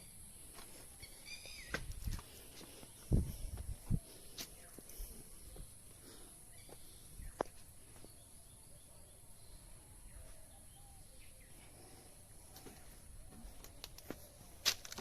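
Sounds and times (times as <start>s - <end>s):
faint bird calls: 0.0s - 2.0s.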